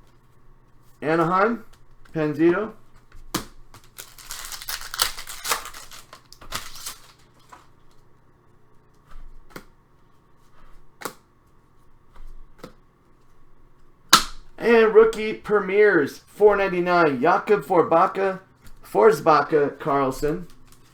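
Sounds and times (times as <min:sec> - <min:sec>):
trading cards rustling: 0:03.7 - 0:08.0, 0:19.0 - 0:20.9.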